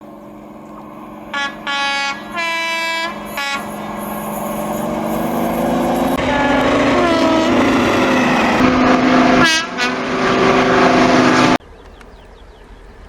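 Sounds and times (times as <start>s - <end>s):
locomotive exhaust: 0.0s - 11.6s
train running noise: 0.0s - 13.0s
steam locomotive whistle: 1.2s - 11.1s.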